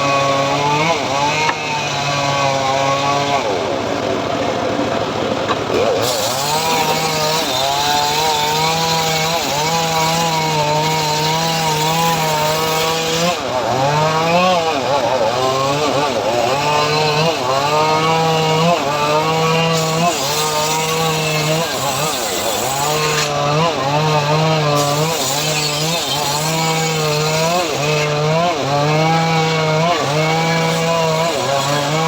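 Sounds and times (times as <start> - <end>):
saw engine running: 0.0 - 32.0
saw cutting wood hiss: 5.9 - 13.5, 16.2 - 28.2, 29.5 - 32.0.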